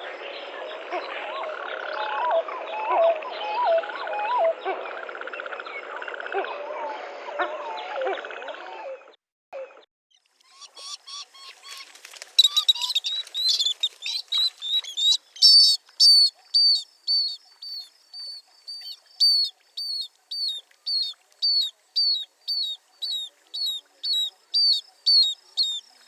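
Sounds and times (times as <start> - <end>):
birds chirping and twittering: 10.1 - 26.0.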